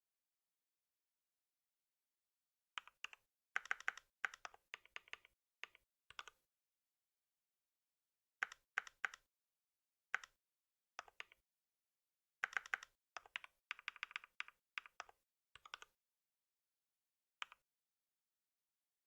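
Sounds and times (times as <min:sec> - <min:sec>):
keyboard typing clicks: 0:02.8 - 0:06.4, 0:08.4 - 0:09.2, 0:11.0 - 0:11.4, 0:12.4 - 0:15.9.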